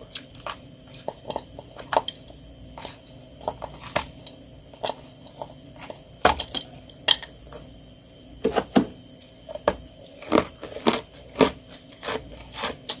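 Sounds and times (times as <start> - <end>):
ice being chewed: 10.0 - 13.0.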